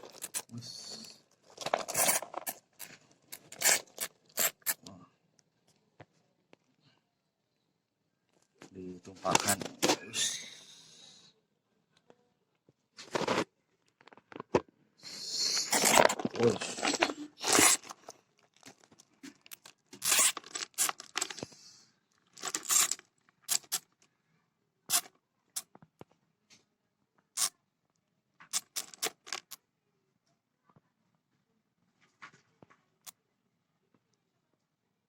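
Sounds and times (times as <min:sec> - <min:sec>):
rustling and scraping: 0:00.0 - 0:04.8, 0:13.0 - 0:14.7, 0:15.6 - 0:21.6, 0:22.2 - 0:23.9.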